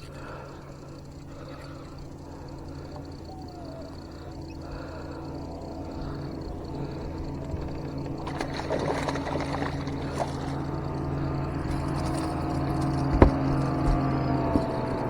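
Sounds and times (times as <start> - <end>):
steady low hum: 0.0 - 15.0
fish splashing at surface: 8.2 - 12.4.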